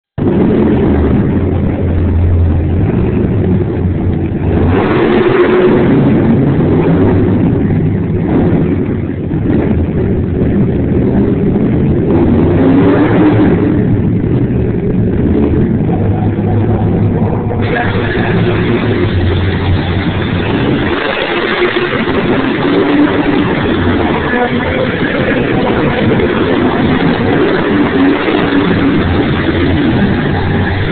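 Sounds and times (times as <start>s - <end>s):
monster truck engine revving: 0.2s - 30.9s.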